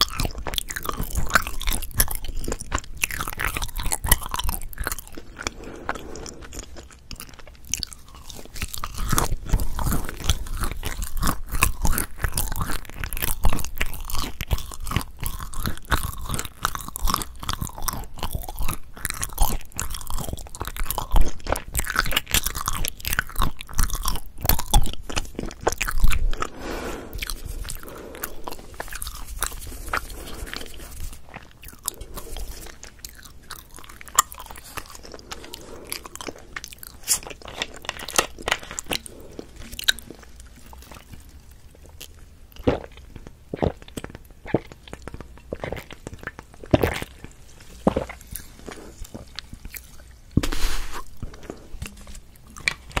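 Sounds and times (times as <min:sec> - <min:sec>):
close-miked chewing: 0:00.0 - 0:53.0.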